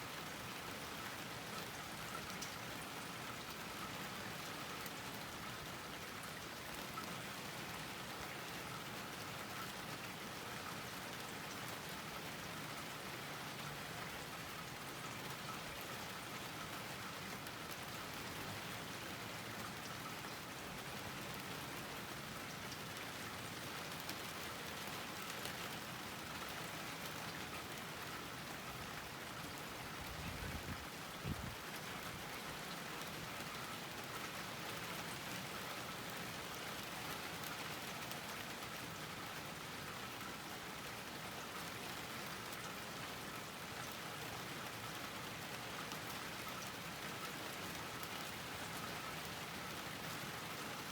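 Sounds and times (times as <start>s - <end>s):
steady rain hiss: 0.0s - 50.9s
raindrops pattering: 0.2s - 50.9s.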